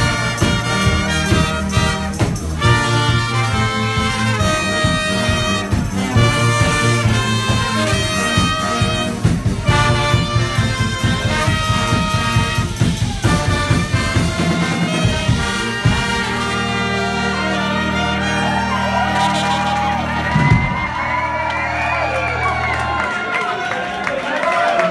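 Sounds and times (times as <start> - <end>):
drum beat: 0.0 - 17.0
brass band playing: 0.0 - 24.0.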